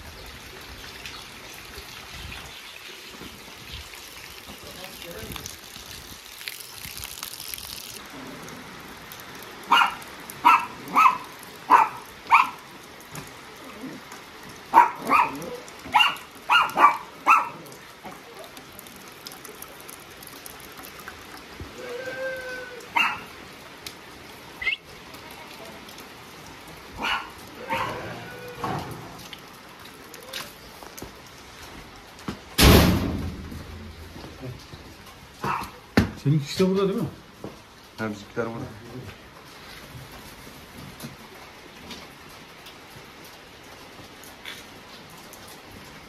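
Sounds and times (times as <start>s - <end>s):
rain hissing: 0.0s - 46.0s
dog barking: 9.7s - 12.6s, 14.7s - 17.7s, 22.9s - 23.3s, 27.0s - 28.2s, 35.4s - 35.8s
dog howling call: 21.8s - 23.2s, 27.1s - 28.9s.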